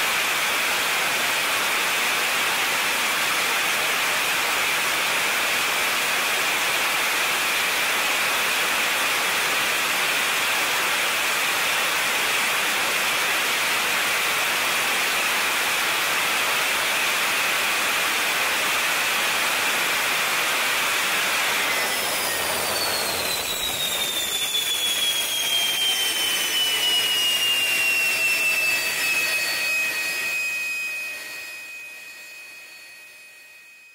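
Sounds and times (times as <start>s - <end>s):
turbine whine sliding down: 4.6s - 33.9s
jet engine roar: 11.7s - 32.2s.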